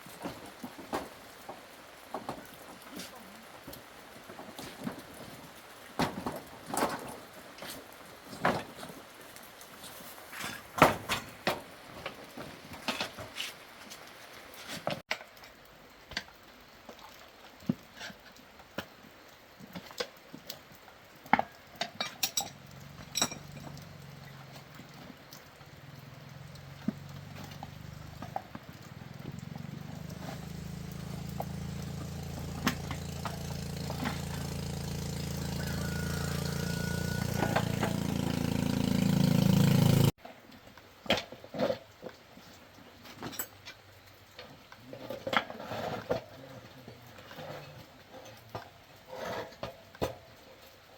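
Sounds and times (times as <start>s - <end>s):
metal tools clinking on metal: 22.0s - 24.0s
engine running: 22.5s - 40.2s.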